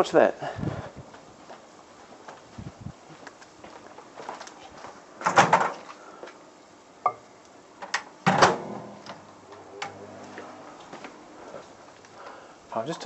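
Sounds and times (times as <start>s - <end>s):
microwave humming: 5.0s - 12.8s
microwave door clunk: 8.3s - 9.1s.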